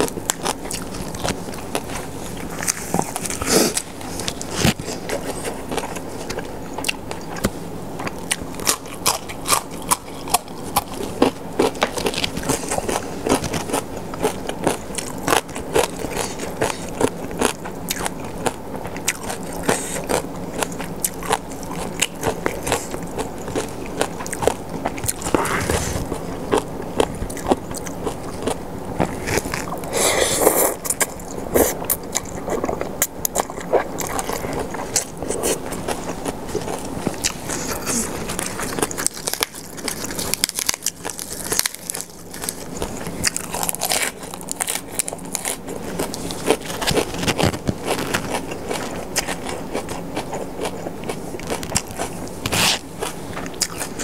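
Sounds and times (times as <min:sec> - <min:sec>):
crunchy chewing: 0:00.0 - 0:54.0
slurping noodles: 0:25.2 - 0:26.1.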